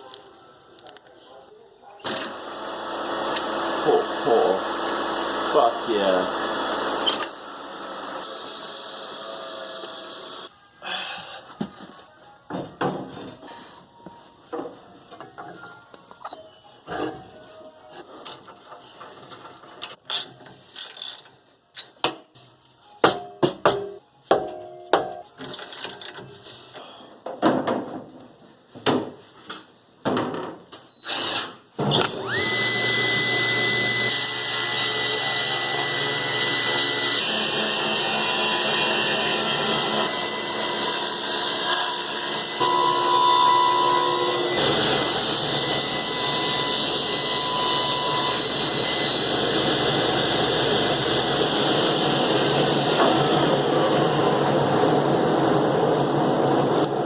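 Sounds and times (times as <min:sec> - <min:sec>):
table saw motor whining: 0:02.1 - 0:10.5, 0:31.9 - 0:53.4.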